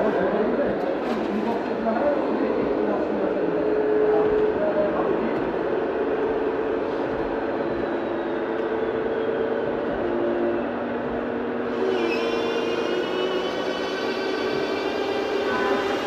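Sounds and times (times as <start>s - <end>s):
high-pitched whine: 7.3s - 16.0s.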